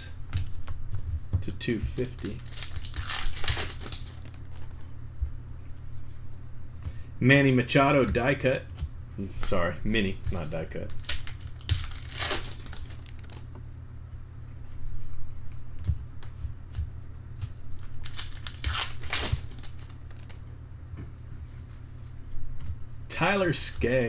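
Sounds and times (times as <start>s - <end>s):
steady low hum: 0.0s - 24.0s
card pack wrappers tearing: 2.0s - 4.8s, 10.4s - 13.5s, 17.8s - 20.4s.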